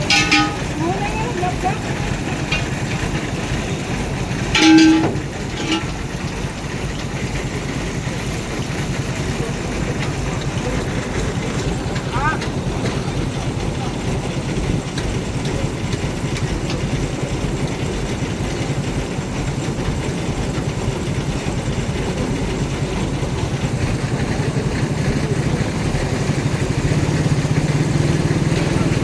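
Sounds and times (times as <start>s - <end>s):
heavy vehicle engine rumbling: 0.0s - 29.0s.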